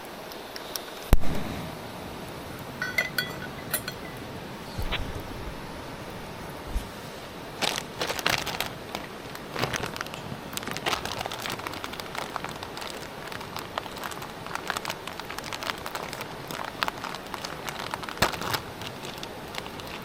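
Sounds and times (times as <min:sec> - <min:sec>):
wood fire crackling and popping: 0:07.6 - 0:20.0.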